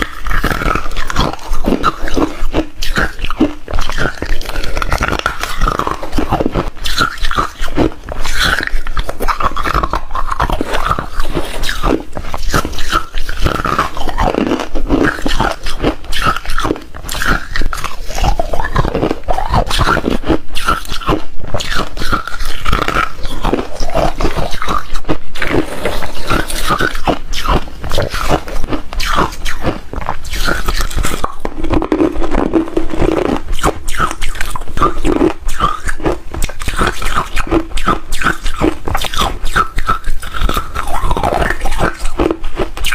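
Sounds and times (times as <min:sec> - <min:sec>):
ice being chewed: 0:00.0 - 0:42.9.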